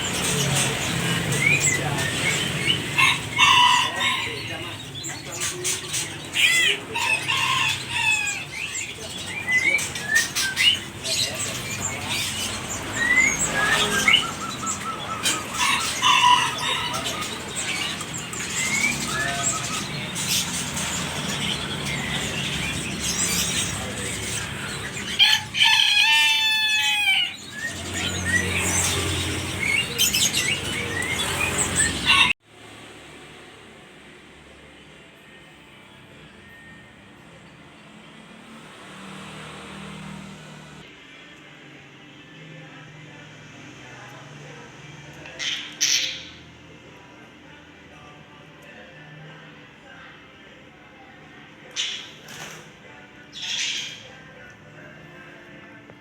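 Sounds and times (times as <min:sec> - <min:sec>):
starling chicks chirping: 0:00.0 - 0:32.4
warbling bird call: 0:10.0 - 0:32.4.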